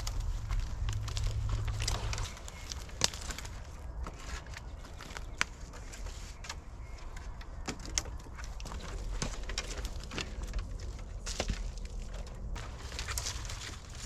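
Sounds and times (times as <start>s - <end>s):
low steady rumble: 0.0s - 5.4s
light clicks and crackles: 0.0s - 14.0s.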